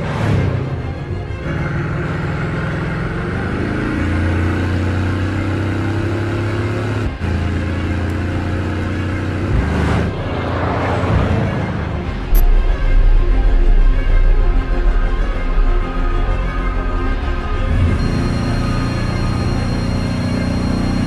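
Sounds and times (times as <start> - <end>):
rushing pass-by: 9.4 - 17.8.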